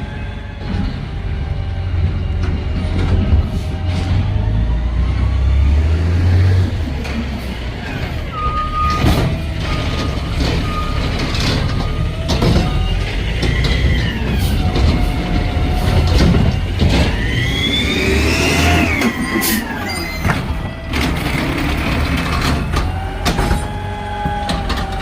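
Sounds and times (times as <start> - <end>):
diesel engine rumble: 0.0 - 25.0
truck whining: 0.0 - 25.0
reversing alarm beeping: 8.3 - 20.8.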